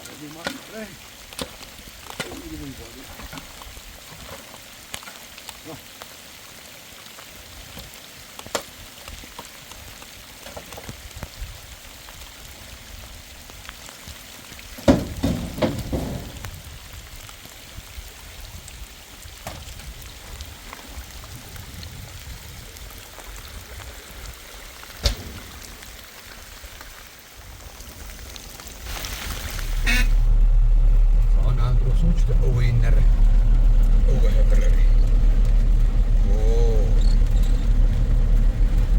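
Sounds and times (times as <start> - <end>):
rain falling: 0.0 - 38.9
loud knocks: 14.8 - 16.6
low rumble: 27.6 - 38.9.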